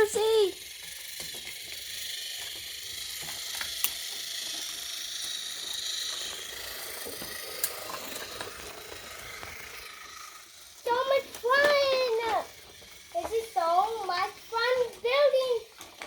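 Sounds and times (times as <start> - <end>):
toy train motors whirring: 0.0 - 16.0.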